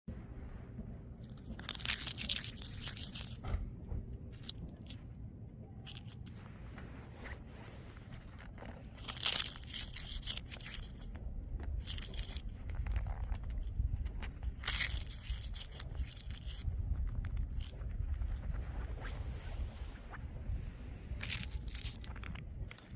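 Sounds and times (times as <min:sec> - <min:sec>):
dry leaves crunching: 0:01.2 - 0:03.4, 0:04.3 - 0:05.0, 0:08.4 - 0:16.6, 0:21.2 - 0:22.8.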